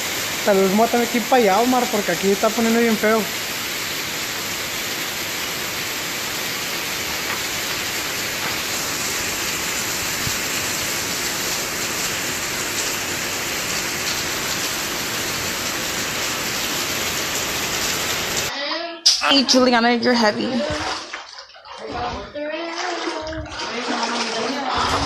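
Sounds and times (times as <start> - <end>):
heavy rain falling: 0.0 - 18.5.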